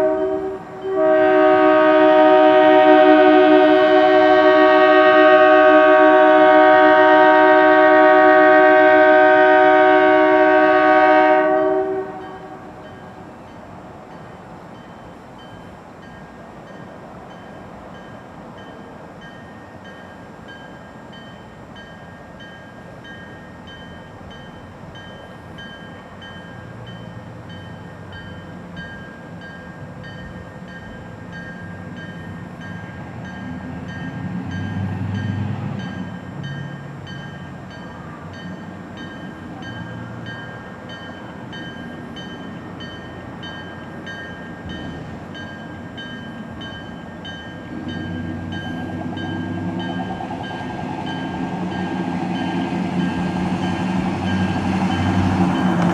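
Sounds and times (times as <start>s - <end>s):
locomotive air horn blast: 0.0s - 12.8s.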